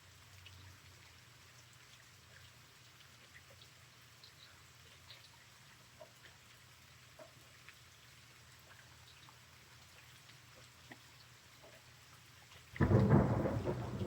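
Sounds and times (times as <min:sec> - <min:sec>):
raindrops ticking: 0:12.5 - 0:14.0.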